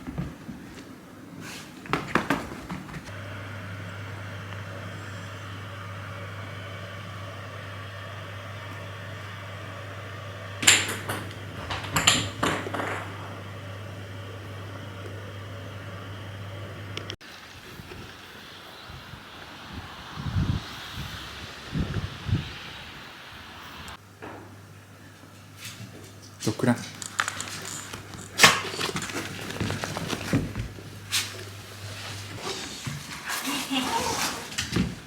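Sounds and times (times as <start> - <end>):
small electric motor humming: 3.1 - 17.2.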